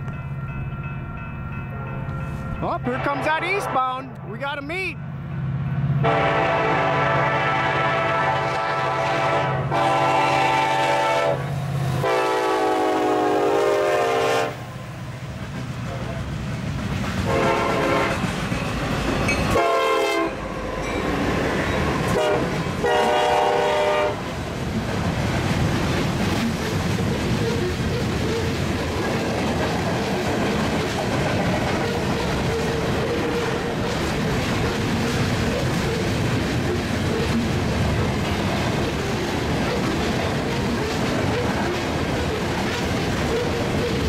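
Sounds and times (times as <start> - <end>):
freight train rumbling past: 0.0 - 44.0
locomotive horn blasts: 6.0 - 14.6, 17.3 - 18.3, 19.5 - 20.4, 22.1 - 24.3
wheels clattering on rails: 15.4 - 19.7, 24.4 - 44.0.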